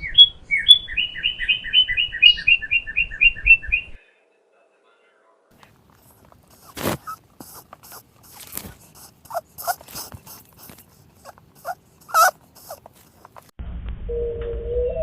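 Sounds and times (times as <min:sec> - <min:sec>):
dog snuffling: 0:05.6 - 0:13.5
dog whimpering: 0:06.0 - 0:13.5.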